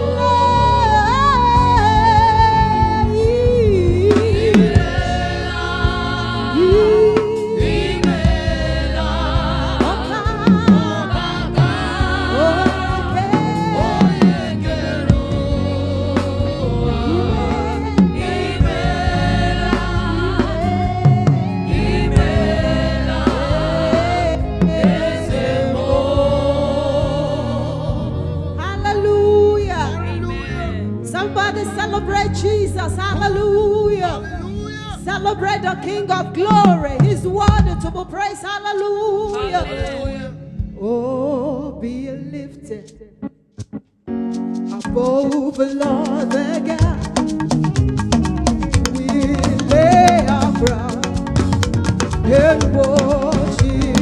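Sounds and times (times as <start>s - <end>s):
band with bass and drums: 0.0s - 30.8s, 36.4s - 38.3s, 43.6s - 54.0s
gospel singing with vibrato: 0.0s - 54.0s.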